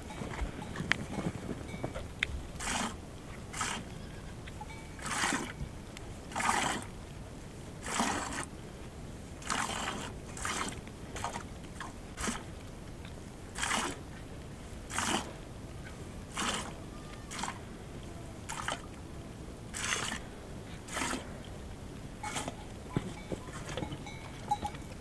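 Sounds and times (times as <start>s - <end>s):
footsteps crunching in snow: 0.0s - 2.1s.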